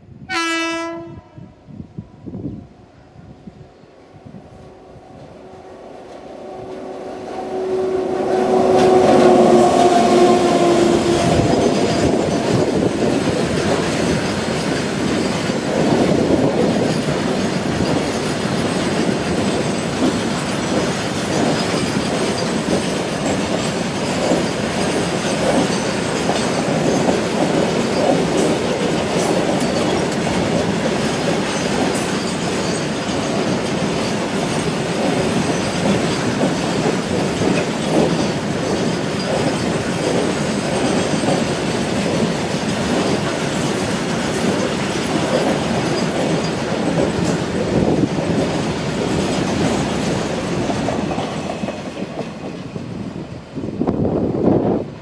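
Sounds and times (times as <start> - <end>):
locomotive horn blast: 0.3 - 1.6, 4.6 - 11.9
train wheels clattering over joints: 8.6 - 52.9.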